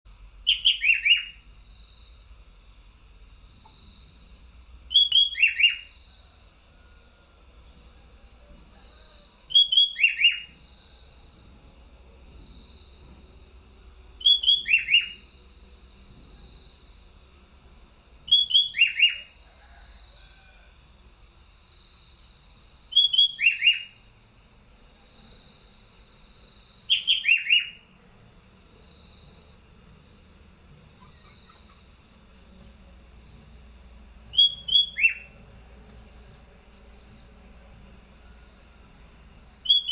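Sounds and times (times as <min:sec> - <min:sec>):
faint low hum and hiss: 0:00.1 - 0:39.9
bulbul whistled song: 0:00.4 - 0:01.4, 0:04.9 - 0:06.0, 0:09.5 - 0:10.6, 0:14.2 - 0:15.3, 0:18.2 - 0:19.4, 0:22.9 - 0:24.0, 0:26.8 - 0:27.8, 0:34.3 - 0:35.4, 0:39.6 - 0:39.9.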